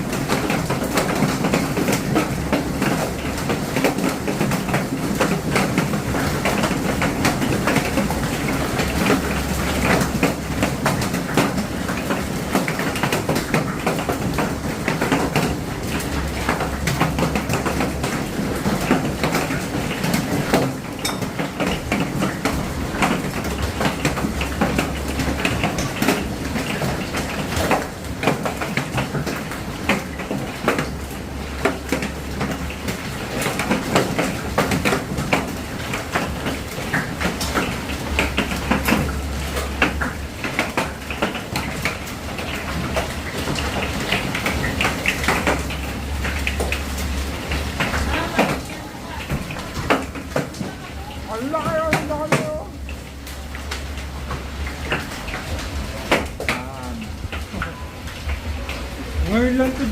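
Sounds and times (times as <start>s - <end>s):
hailstones pelting hard surfaces: 0.0s - 59.9s
hiss of falling ice and rain: 0.0s - 59.9s
low steady rumble: 52.6s - 59.9s.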